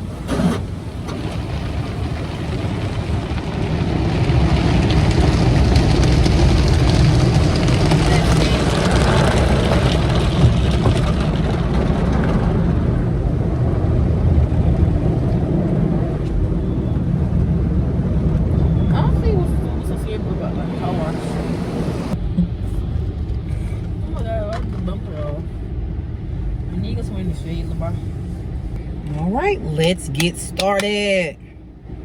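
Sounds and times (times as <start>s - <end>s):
car wash spraying and scrubbing: 0.0s - 16.0s, 19.0s - 22.2s
deep rumble: 0.0s - 32.0s.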